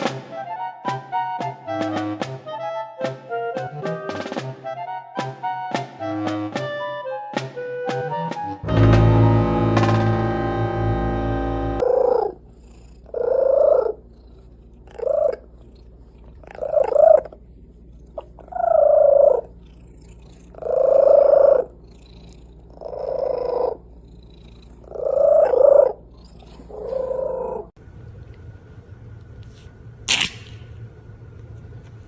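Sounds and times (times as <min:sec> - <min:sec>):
pet animal short pitched calls: 0:24.9 - 0:27.6.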